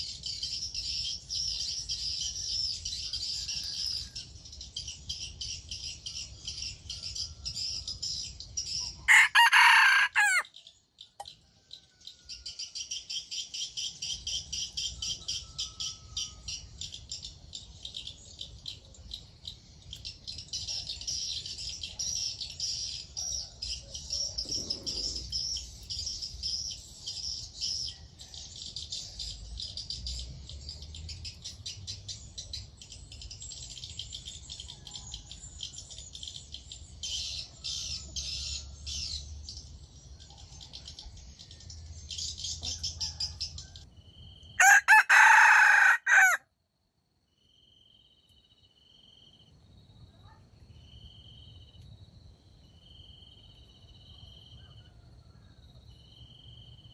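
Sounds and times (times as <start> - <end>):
rooster crowing: 9.1 - 10.5, 44.6 - 46.4
faint insects chirping: 12.9 - 56.9.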